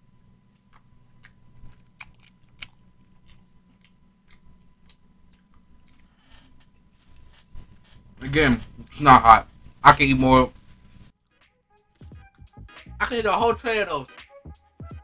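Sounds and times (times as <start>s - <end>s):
person chewing chicken wing: 0.5s - 7.5s.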